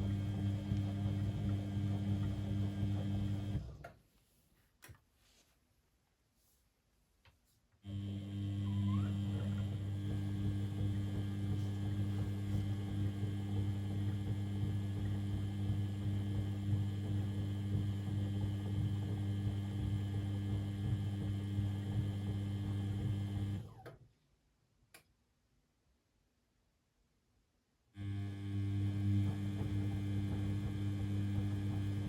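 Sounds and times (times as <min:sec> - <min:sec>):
washing machine pump humming: 0:00.0 - 0:04.0, 0:07.9 - 0:23.9, 0:28.0 - 0:32.0
click: 0:24.9 - 0:25.2.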